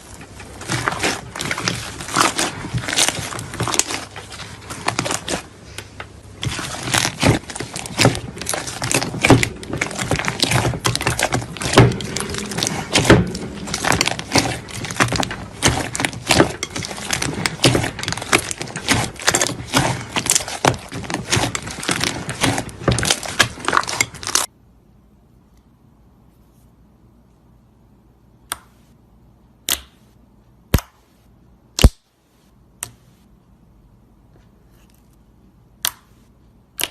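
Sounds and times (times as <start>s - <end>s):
slime clicking and popping: 35.8s - 36.9s.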